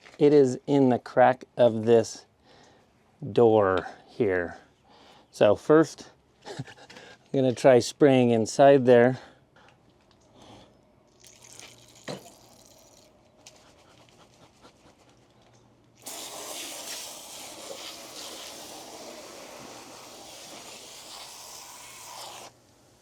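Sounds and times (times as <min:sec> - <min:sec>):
aerosol spray hissing: 0:16.0 - 0:22.6.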